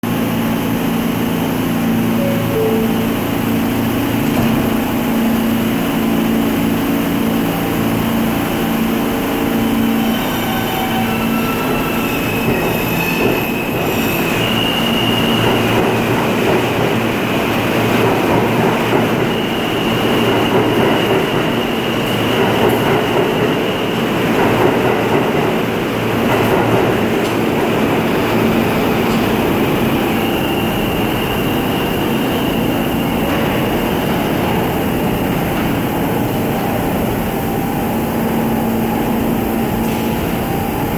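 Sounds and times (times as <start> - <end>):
subway motors whining: 0.0 - 40.9
train cars rumbling on rails: 0.0 - 40.9
wheel squeal: 9.6 - 16.1, 28.6 - 34.9.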